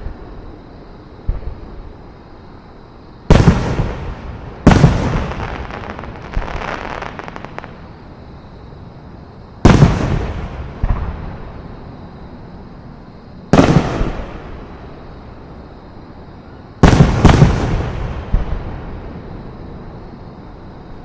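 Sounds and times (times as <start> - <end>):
fireworks crackling: 3.3 - 7.9, 13.6 - 14.7, 16.8 - 18.7
fireworks booming: 3.3 - 8.0, 9.6 - 11.8, 13.5 - 15.1, 16.8 - 19.5.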